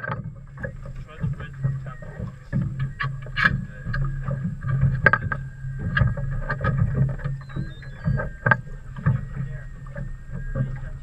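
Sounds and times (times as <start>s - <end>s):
steady low hum: 0.0s - 11.0s
water slapping against boat hull: 0.0s - 11.0s.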